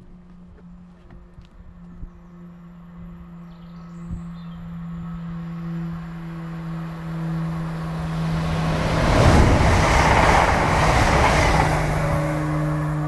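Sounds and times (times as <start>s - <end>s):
train wheels rushing on rails: 7.5s - 13.0s.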